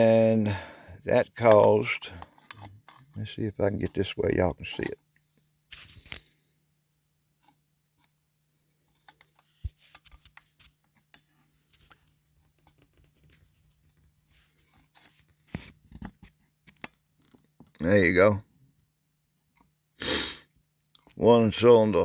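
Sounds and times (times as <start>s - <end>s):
light clicks and scrapes of handling: 1.4s - 6.6s, 7.3s - 18.1s.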